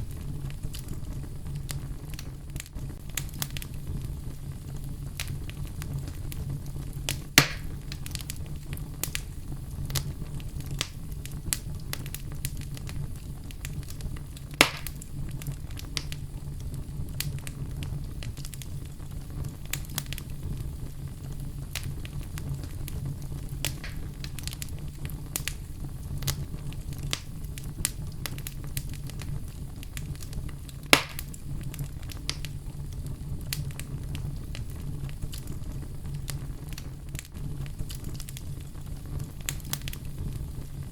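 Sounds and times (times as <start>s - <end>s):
sharp loud pops of fire: 0.0s - 4.1s, 5.1s - 16.2s, 21.7s - 32.7s
wood fire crackling: 0.0s - 40.9s.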